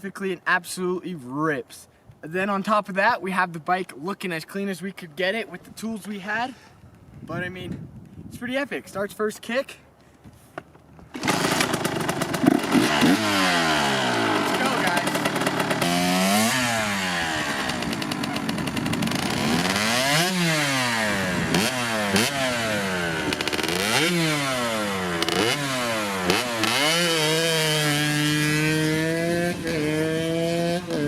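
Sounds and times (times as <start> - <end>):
two-stroke engine revving: 11.1 - 31.0.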